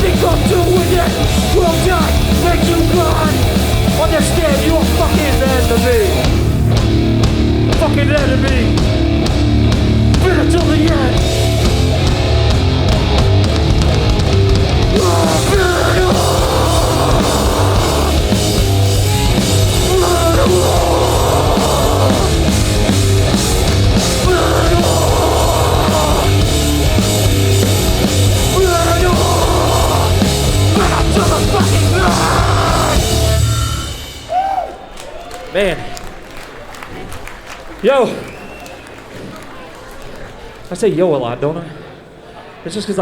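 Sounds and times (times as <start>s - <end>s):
distorted guitars: 0.0s - 34.3s
bass: 0.0s - 34.6s
drums: 0.0s - 39.8s
shouted vocals: 14.9s - 36.1s.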